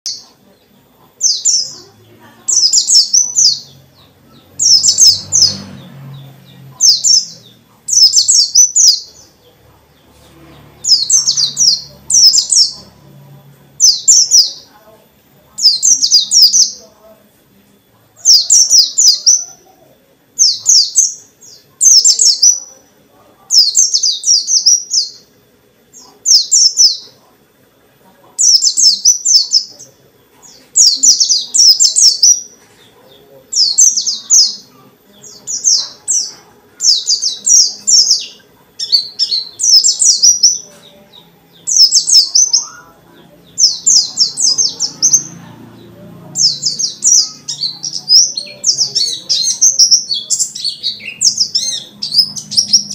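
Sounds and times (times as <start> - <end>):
bird twittering: 2.5 - 9.4, 10.8 - 12.9, 33.5 - 40.7, 46.3 - 52.9.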